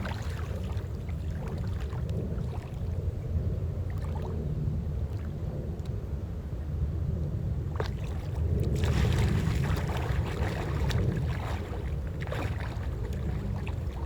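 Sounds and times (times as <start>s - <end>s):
water splashing and sloshing: 0.0s - 6.0s, 7.6s - 14.0s
wind on microphone: 0.0s - 14.0s.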